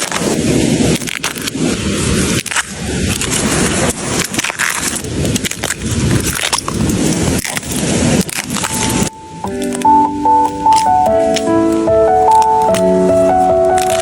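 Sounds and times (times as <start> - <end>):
bamboo snapping: 0.0 - 1.6, 2.3 - 3.5, 4.2 - 9.9
bamboo rustling and crackling: 0.0 - 9.9, 12.3 - 14.0.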